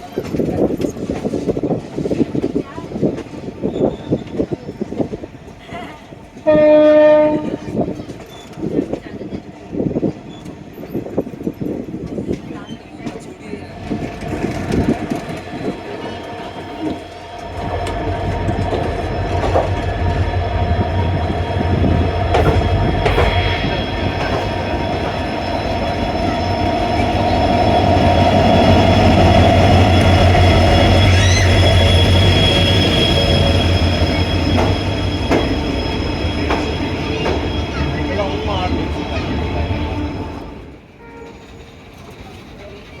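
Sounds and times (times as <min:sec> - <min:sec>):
train rumbling on rails: 0:00.0 - 0:43.0
high wheel squeal: 0:13.8 - 0:42.1.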